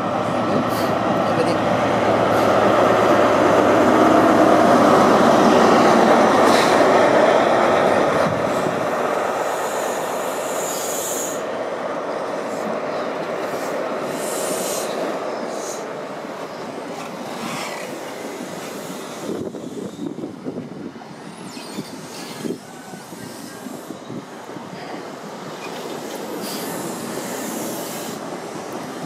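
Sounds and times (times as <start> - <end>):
diesel train engine and wheels: 0.0 - 29.0
high wheel squeal: 19.1 - 20.3, 21.2 - 24.2.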